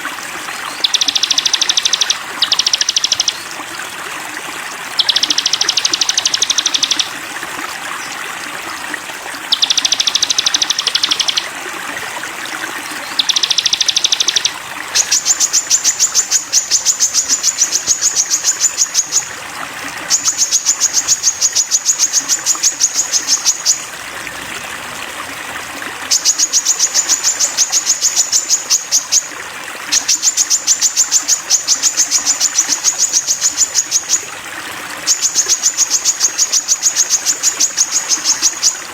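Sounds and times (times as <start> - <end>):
songbird chattering trill: 0.6 - 3.5, 5.0 - 7.1, 9.5 - 11.5, 13.0 - 19.3, 20.1 - 23.8, 26.1 - 29.3, 29.9 - 34.3, 35.0 - 38.8.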